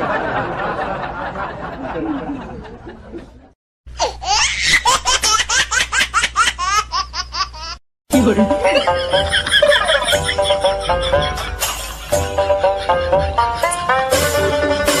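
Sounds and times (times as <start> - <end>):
laughter sound effect: 0.0 - 3.4, 8.4 - 15.0
high-pitched rapid laughter: 8.6 - 15.0.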